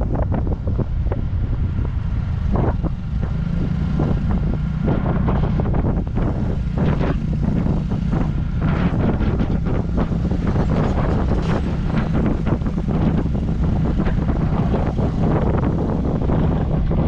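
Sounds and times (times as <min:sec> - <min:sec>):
motorcycle engine running: 0:00.0 - 0:17.0
wind buffeting microphone: 0:00.0 - 0:17.0.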